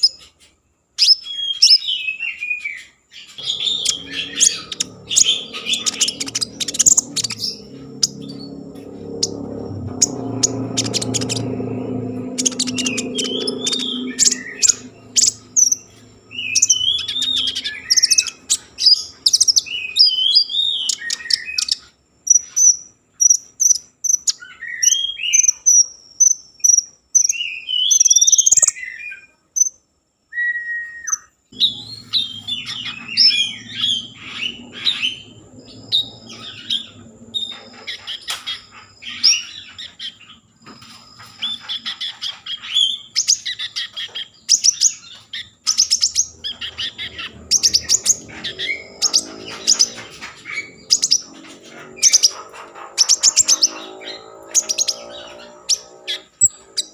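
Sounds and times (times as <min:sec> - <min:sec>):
songbird singing: 0:00.0 - 0:56.9
low hum: 0:03.4 - 0:21.1, 0:31.6 - 0:39.6, 0:46.0 - 0:56.8.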